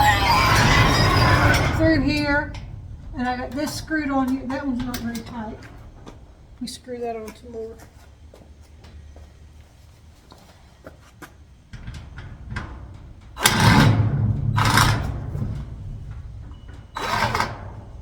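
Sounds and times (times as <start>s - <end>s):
metal scraping and rattling: 0.0s - 7.8s, 11.7s - 18.0s.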